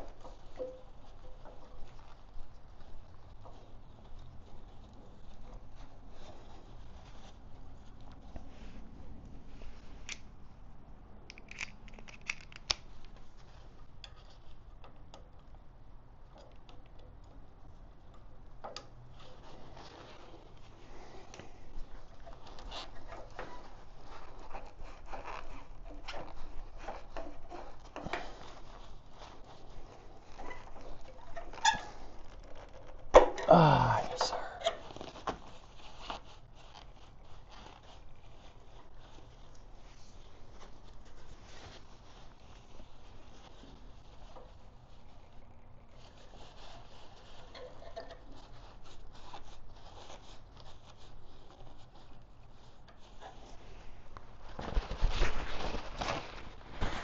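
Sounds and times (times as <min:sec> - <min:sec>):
clicks and scrapes of hand work: 0:11.3 - 0:33.5, 0:34.6 - 0:57.0.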